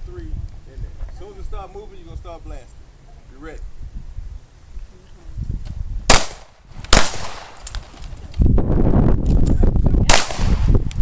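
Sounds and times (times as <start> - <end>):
pistol shots: 6.1 - 7.9, 10.1 - 10.7.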